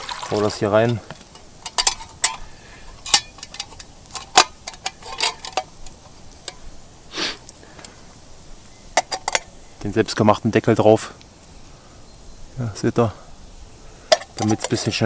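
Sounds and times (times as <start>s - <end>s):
sharp clicks and light knocks: 0.8s - 2.4s, 3.0s - 6.7s, 14.1s - 15.0s.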